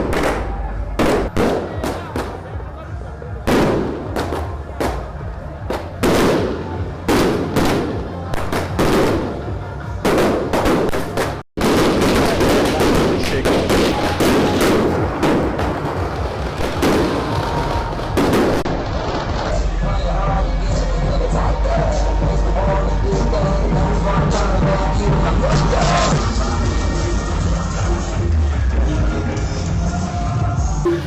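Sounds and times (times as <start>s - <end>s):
firecracker bangs: 0.0s - 2.5s, 3.4s - 19.6s
firecracker string crackling: 3.4s - 19.8s.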